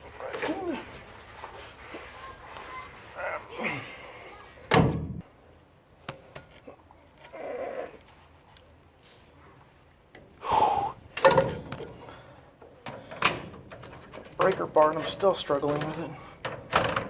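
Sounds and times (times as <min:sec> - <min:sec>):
metallic knocks of breaker bar: 0:04.7 - 0:05.2, 0:11.2 - 0:12.0.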